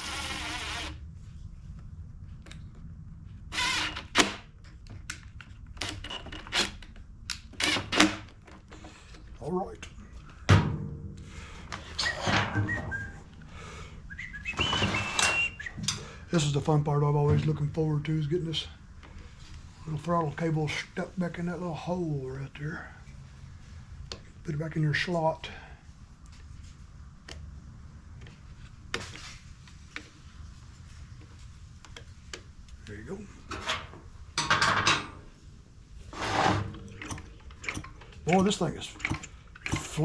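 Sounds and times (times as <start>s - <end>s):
low steady hum: 0.0s - 40.0s
person whistling: 12.0s - 13.3s, 14.1s - 15.8s.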